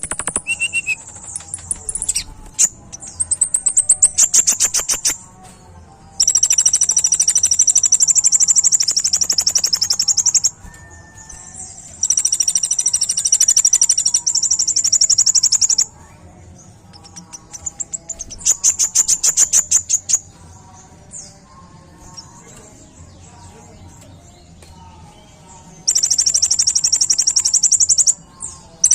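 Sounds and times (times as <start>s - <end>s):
bird chirps: 0.0s - 5.2s, 6.2s - 16.1s, 16.9s - 20.3s, 25.8s - 28.9s
bird singing high-pitched trills: 0.0s - 5.2s, 6.2s - 16.2s, 16.8s - 21.4s, 25.6s - 28.9s.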